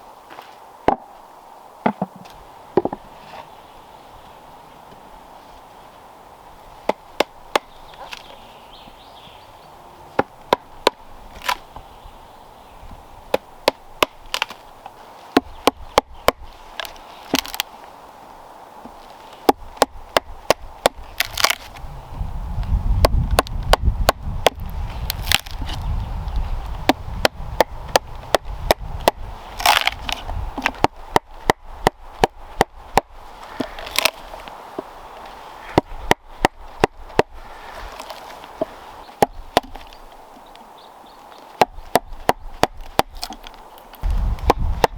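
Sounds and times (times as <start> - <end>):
tool chopping into wood: 1.8 - 3.0, 6.9 - 8.3, 13.3 - 14.6, 15.3 - 17.7, 19.4 - 21.8, 23.0 - 25.8, 26.8 - 34.2, 35.7 - 39.9, 41.6 - 44.9.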